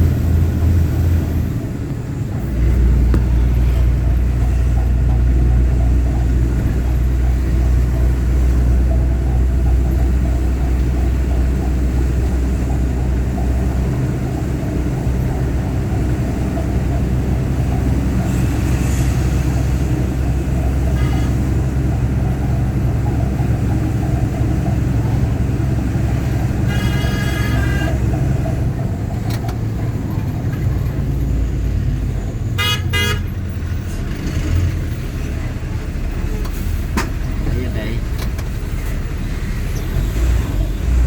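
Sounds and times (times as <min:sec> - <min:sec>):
heavy truck engine rumbling: 0:00.0 - 0:41.0
vehicle horns: 0:20.7 - 0:21.8, 0:26.2 - 0:28.3, 0:32.5 - 0:33.5.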